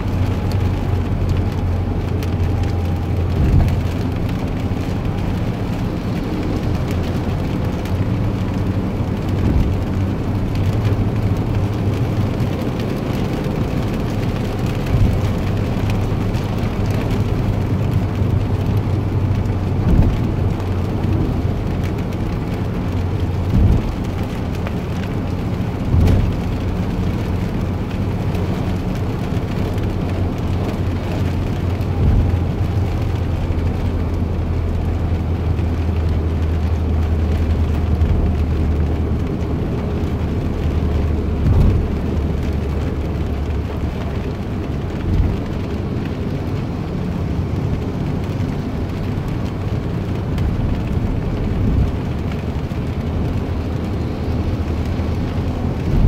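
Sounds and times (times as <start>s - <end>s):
constant low hum: 0.0s - 56.0s
low mechanical rumble: 0.0s - 56.0s.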